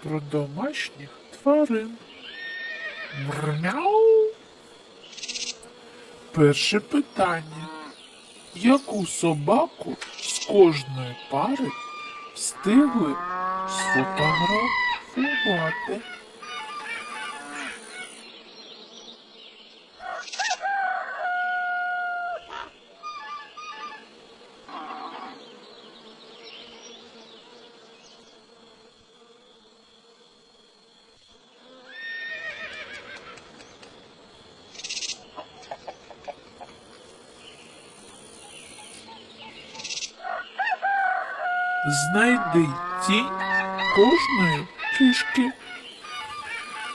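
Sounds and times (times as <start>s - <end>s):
small birds chirping: 0.0s - 20.4s, 41.3s - 46.9s
hen clucking: 10.3s - 17.6s, 41.6s - 46.9s
rooster crowing: 20.0s - 22.7s, 40.2s - 46.9s.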